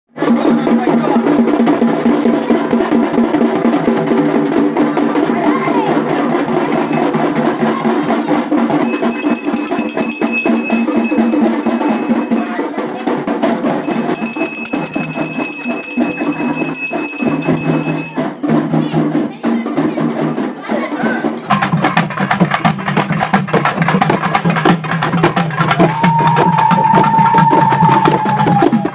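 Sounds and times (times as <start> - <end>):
loud drumming: 0.2 - 28.9
high steady ringing tone: 5.7 - 7.4, 8.8 - 12.7, 13.8 - 18.4.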